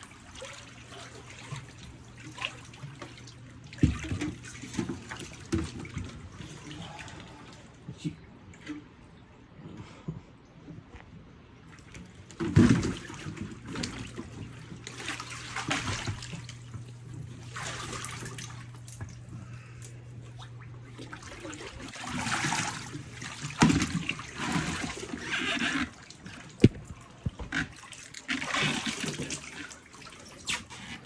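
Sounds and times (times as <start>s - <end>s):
water trickling and splashing: 0.0s - 7.8s, 11.8s - 31.0s
steady low hum: 13.4s - 25.2s.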